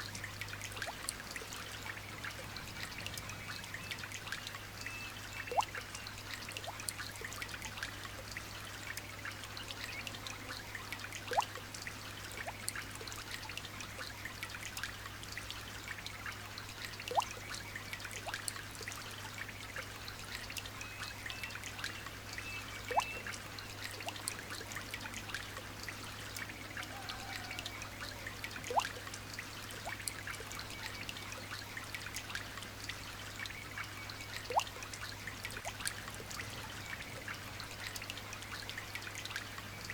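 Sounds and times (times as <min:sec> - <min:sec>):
rain patter: 0:00.0 - 0:20.8
sharp loud drip: 0:04.8 - 0:06.0, 0:22.4 - 0:24.2
faint high bird chirps: 0:20.8 - 0:23.3.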